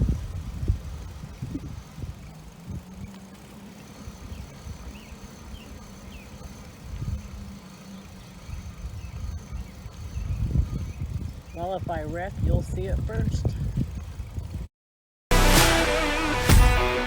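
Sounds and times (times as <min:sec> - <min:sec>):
wind and road rumble: 0:00.0 - 0:14.7.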